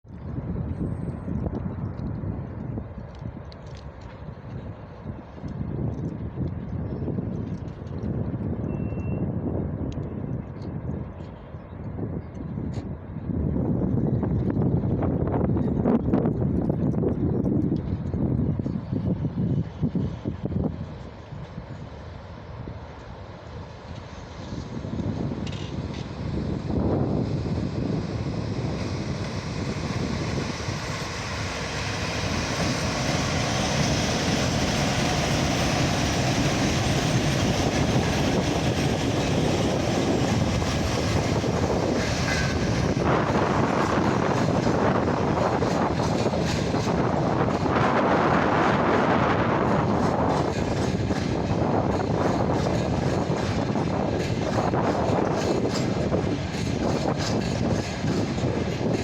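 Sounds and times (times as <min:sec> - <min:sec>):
train wheels rumbling on rail: 0:00.1 - 0:59.0
brief high squeal: 0:08.7 - 0:09.3.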